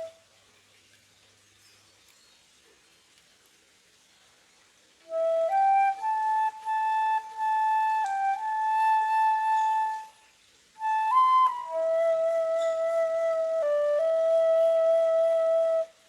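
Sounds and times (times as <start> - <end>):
solo flute melody: 0.0 - 0.2, 5.0 - 16.0.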